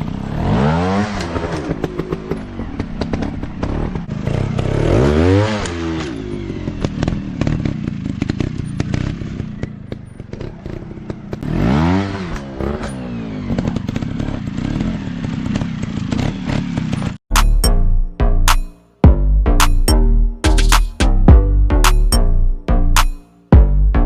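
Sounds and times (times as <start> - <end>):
dirt bike engine revving: 0.0 - 9.7, 10.3 - 17.5.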